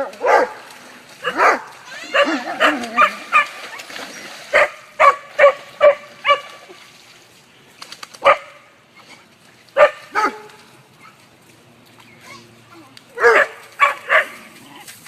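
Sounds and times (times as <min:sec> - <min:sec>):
dog barking: 0:00.0 - 0:00.6, 0:01.2 - 0:03.5, 0:04.5 - 0:06.5, 0:08.2 - 0:08.6, 0:09.8 - 0:10.5, 0:13.2 - 0:14.4.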